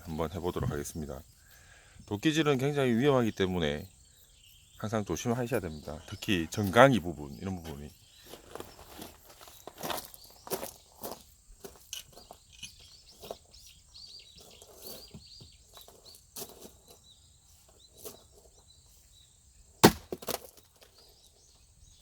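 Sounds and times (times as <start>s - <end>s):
axe splitting log: 19.8s - 20.5s
small scattered knocks: 19.8s - 21.0s.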